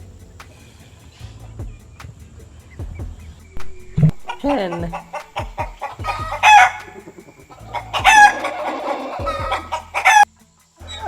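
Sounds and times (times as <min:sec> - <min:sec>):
chickens clucking: 0:00.4 - 0:11.0
chicken drawn-out calls: 0:04.2 - 0:11.0.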